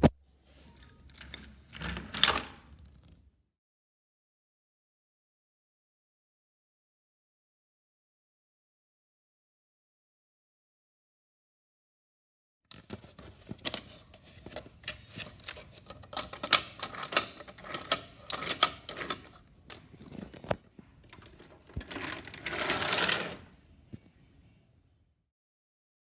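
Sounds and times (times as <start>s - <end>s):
wooden toy train clattering: 12.7s - 23.5s.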